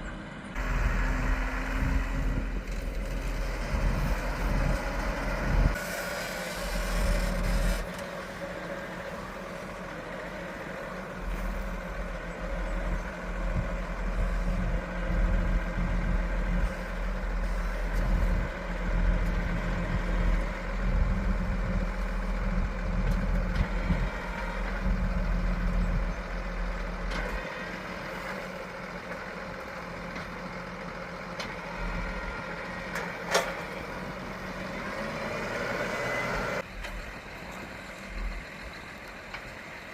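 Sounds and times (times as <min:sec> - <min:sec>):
heavy machinery engine rumbling: 0:00.0 - 0:39.9.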